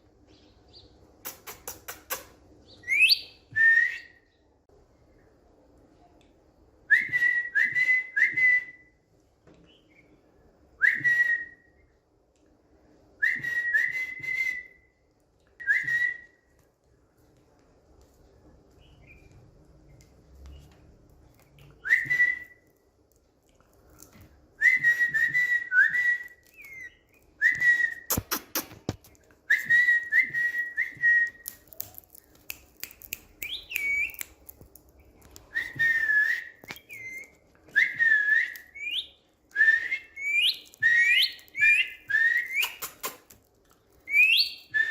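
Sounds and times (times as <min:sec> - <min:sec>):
parakeet whistling: 0:33.4 - 0:34.2, 0:35.6 - 0:43.0, 0:44.1 - 0:44.9.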